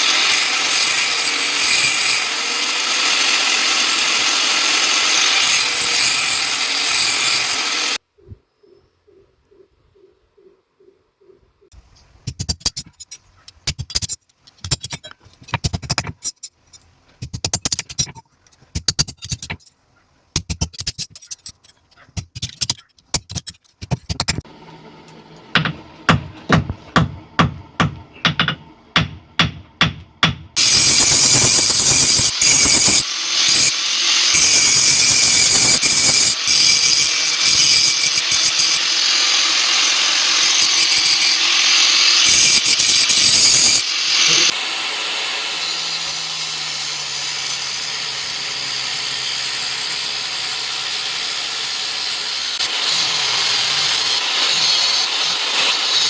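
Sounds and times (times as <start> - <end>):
power tool running loudly: 0.0 - 8.0, 30.6 - 56.0.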